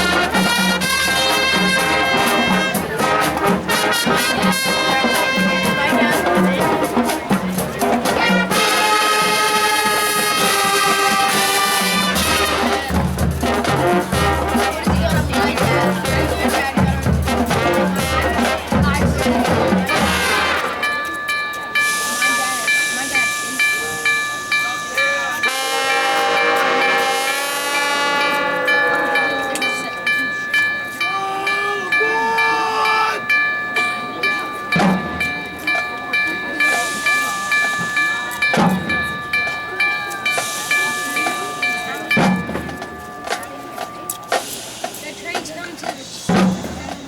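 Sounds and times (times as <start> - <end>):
marching band brass and drums: 0.0 - 21.1, 25.0 - 33.2, 34.1 - 47.0
train chime: 0.0 - 47.0
bell-like ringing tone: 19.9 - 44.9
train whistle chord: 25.3 - 30.0
steam hiss: 36.6 - 38.9, 40.2 - 42.2, 44.2 - 47.0.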